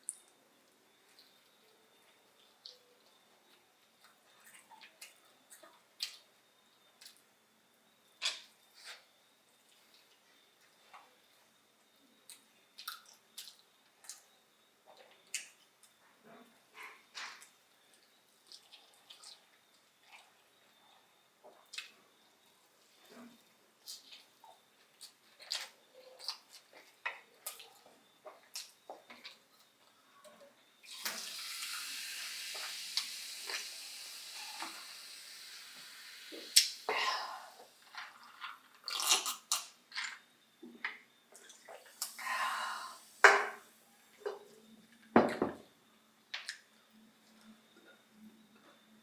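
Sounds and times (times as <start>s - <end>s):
chewing a sandwich: 12.0s - 30.0s, 37.8s - 40.2s
person chewing a sandwich: 23.8s - 29.8s
drink being poured: 30.9s - 39.6s, 41.5s - 43.7s.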